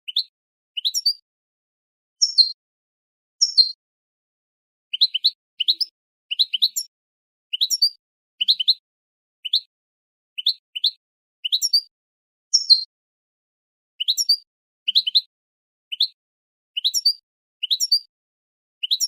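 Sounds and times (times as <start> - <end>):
finch twittering: 0.0 - 1.2, 4.9 - 6.9, 7.5 - 8.8, 10.4 - 11.8, 12.5 - 12.9, 14.0 - 15.2, 16.8 - 18.0.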